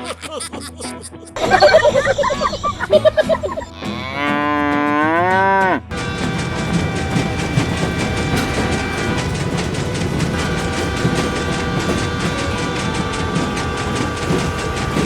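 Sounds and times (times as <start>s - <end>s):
cow mooing: 3.8s - 15.0s
clattering mechanical running noise: 5.9s - 15.0s.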